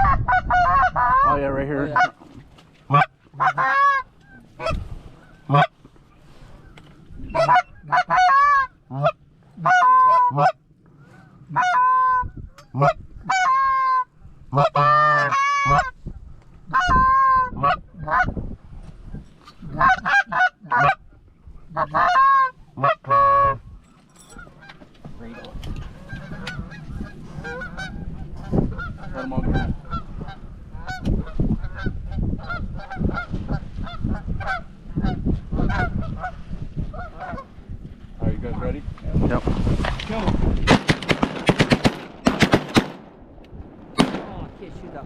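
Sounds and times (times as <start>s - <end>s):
goose honking: 0.0s - 2.2s, 2.9s - 5.8s, 7.3s - 16.0s, 16.7s - 18.3s, 19.6s - 21.1s, 21.7s - 23.6s, 24.4s - 37.6s.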